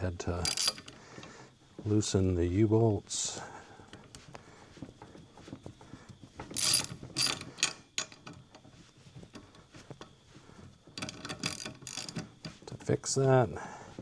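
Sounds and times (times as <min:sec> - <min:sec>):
ratchet wrench clicking: 0:00.4 - 0:01.0, 0:06.5 - 0:08.2, 0:11.0 - 0:12.3.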